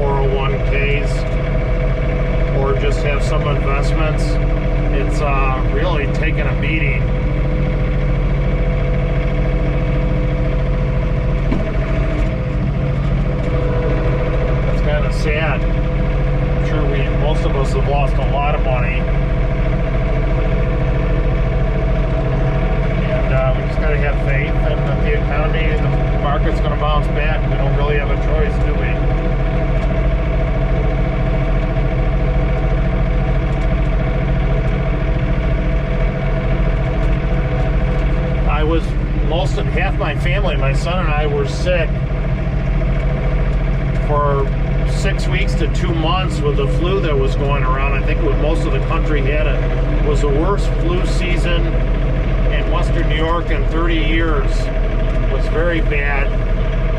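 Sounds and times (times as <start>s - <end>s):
steady whine: 0.0s - 56.9s
tractor diesel engine running: 0.0s - 56.9s.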